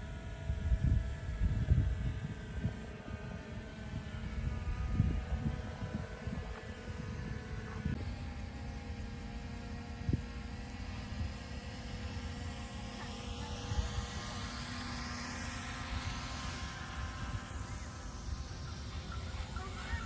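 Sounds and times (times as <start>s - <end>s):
rising whine: 0.0s - 20.0s.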